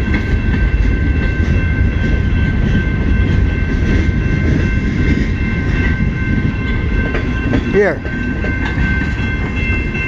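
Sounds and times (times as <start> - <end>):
freight train rumbling on rails: 0.0 - 10.0.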